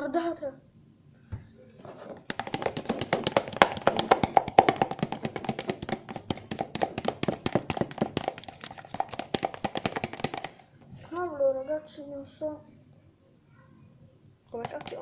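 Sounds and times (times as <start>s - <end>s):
utensil stirring in a bowl: 2.1s - 10.6s, 14.5s - 15.0s
utensil knocking against bowl: 14.6s - 15.0s.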